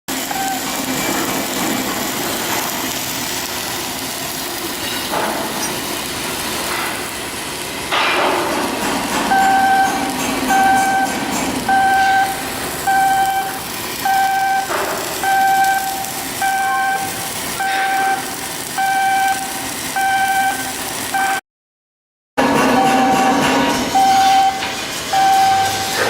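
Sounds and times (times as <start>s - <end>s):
machinery warning beeper: 0.2s - 0.8s, 9.3s - 21.4s, 22.6s - 26.0s.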